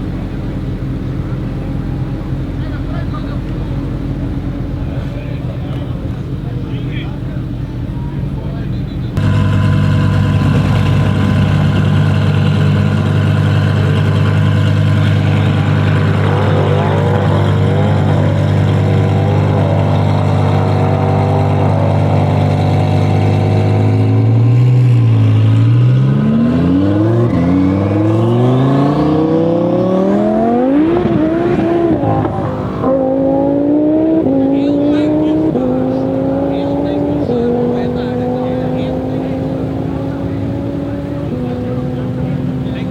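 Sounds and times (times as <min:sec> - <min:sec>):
car engine accelerating hard: 0:09.0 - 0:42.9.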